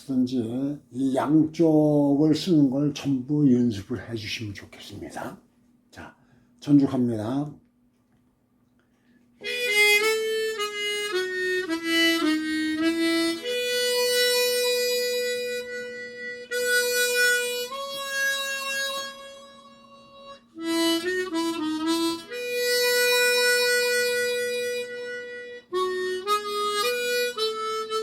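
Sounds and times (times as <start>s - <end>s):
tremolo harmonica melody: 9.4s - 28.0s.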